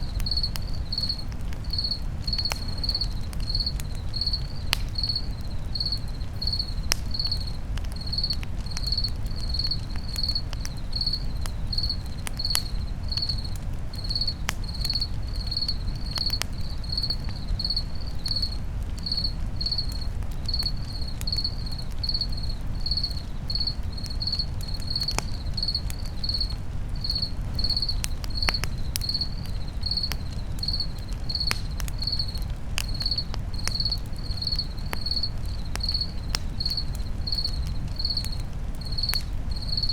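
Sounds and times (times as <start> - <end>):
campfire crackling and popping: 0.0 - 39.9
insect chirping: 0.1 - 39.9.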